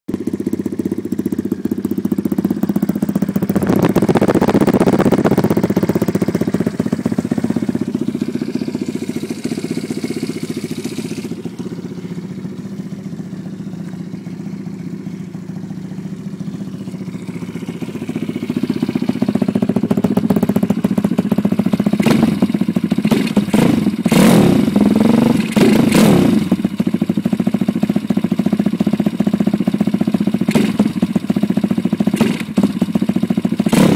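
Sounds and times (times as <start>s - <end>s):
dirt bike engine running: 0.1s - 33.9s.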